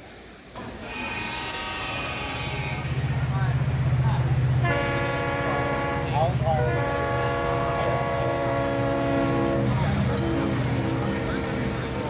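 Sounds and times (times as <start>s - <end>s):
train horn chord: 0.9s - 3.1s, 4.6s - 12.0s.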